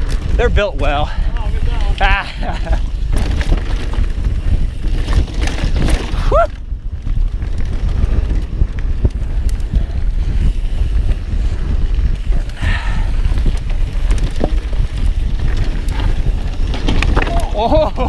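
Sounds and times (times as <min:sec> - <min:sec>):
bike tyre noise: 0:00.0 - 0:18.0
wind rumble on microphone: 0:00.0 - 0:18.0
bike rattling knocks: 0:13.6 - 0:18.0.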